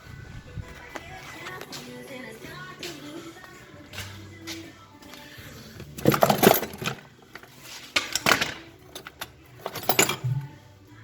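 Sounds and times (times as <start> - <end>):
metal clinking and clattering: 6.0 - 10.6.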